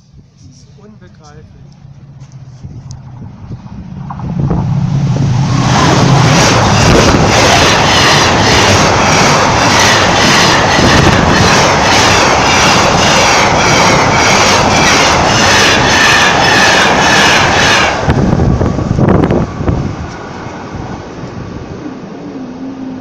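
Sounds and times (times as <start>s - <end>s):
train passing: 0.0s - 23.0s
train wheels clattering: 5.4s - 18.1s.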